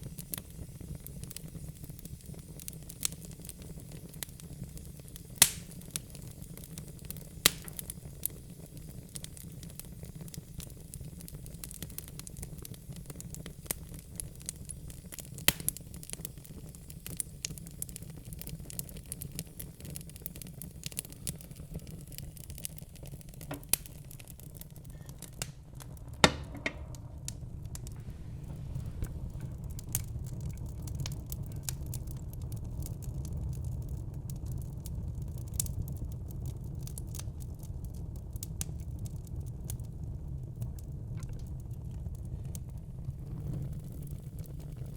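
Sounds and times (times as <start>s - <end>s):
fire crackling and popping: 0.0s - 44.9s
low steady rumble: 21.3s - 35.1s.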